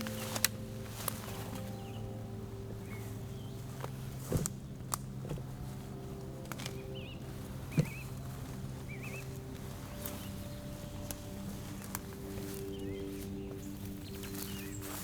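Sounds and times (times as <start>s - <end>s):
low steady hum: 0.0s - 15.0s
bird chirps: 6.6s - 15.0s.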